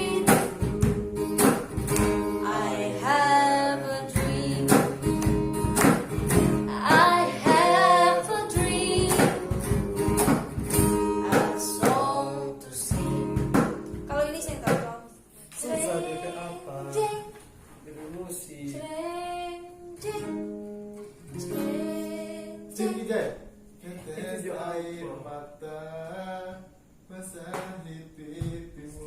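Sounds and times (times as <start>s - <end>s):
woman singing a pop ballad: 0.0s - 0.6s, 2.4s - 5.0s, 6.6s - 10.0s, 11.1s - 13.1s
strummed acoustic guitar: 0.0s - 14.9s, 19.9s - 24.7s.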